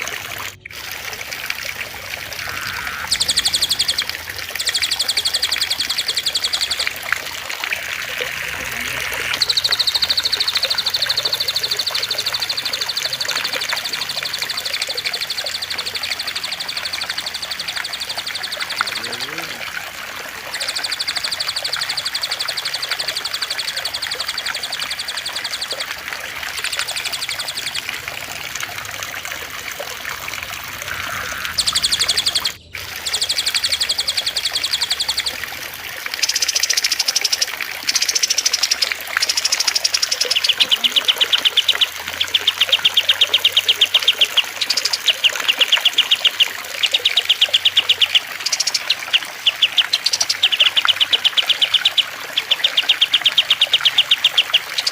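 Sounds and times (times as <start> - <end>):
songbirds trilling: 0.0 - 54.9
trickle of running water: 0.0 - 54.9.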